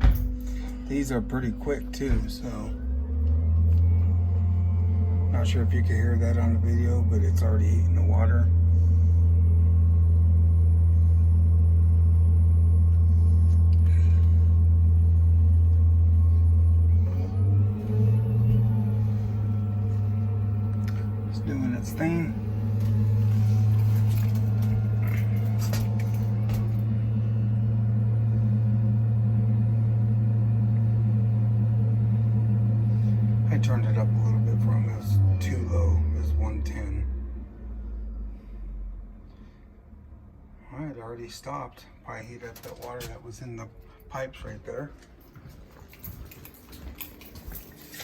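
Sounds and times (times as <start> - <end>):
water heater burner humming: 0.0 - 36.8.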